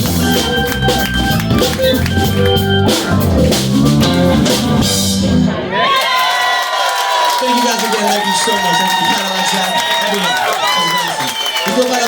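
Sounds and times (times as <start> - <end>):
live band playing: 0.0 - 6.4.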